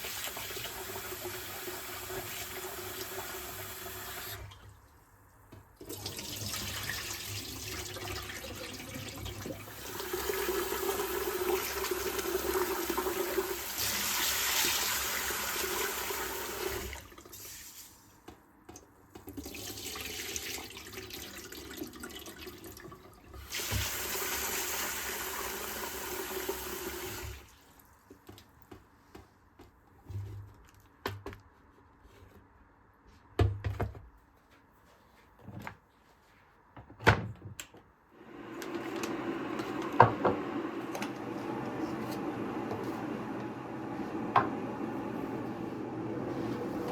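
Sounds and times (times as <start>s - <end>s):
tap water running into sink: 5.8s - 17.6s, 19.2s - 27.6s.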